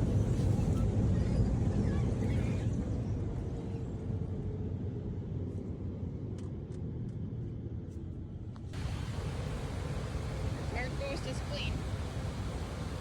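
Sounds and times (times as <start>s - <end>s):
car wash machinery rumbling: 8.8s - 13.0s.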